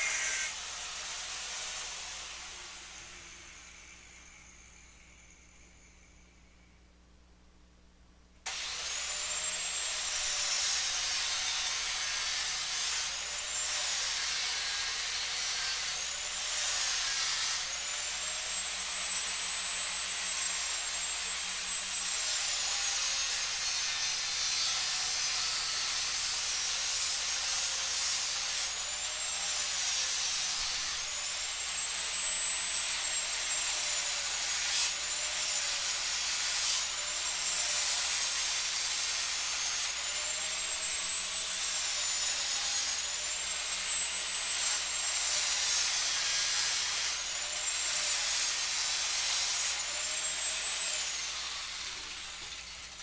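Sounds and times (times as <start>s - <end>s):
electric power tool running: 0.0s - 0.7s, 8.5s - 9.7s, 46.4s - 53.0s.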